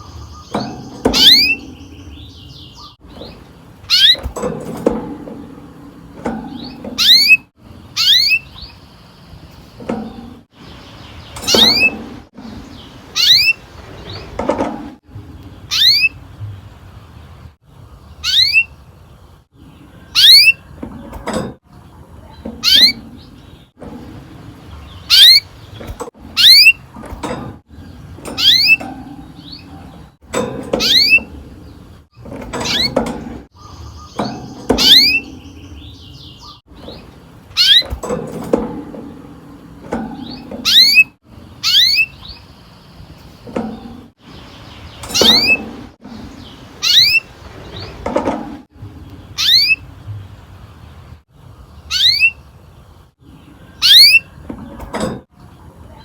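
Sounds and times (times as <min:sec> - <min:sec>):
canary chirp calls: 0:00.0 - 0:04.3, 0:06.6 - 0:09.8, 0:10.6 - 0:14.3, 0:15.6 - 0:16.3, 0:18.1 - 0:18.8, 0:19.7 - 0:20.8, 0:22.1 - 0:23.7, 0:24.8 - 0:26.8, 0:40.2 - 0:43.4, 0:46.2 - 0:48.0, 0:49.2 - 0:49.9, 0:51.8 - 0:52.5, 0:53.6 - 0:54.4.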